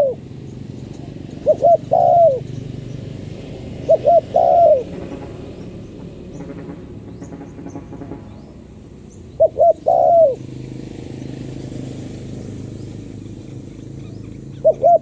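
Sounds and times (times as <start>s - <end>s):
dove cooing: 0.0s - 5.9s, 9.3s - 15.0s.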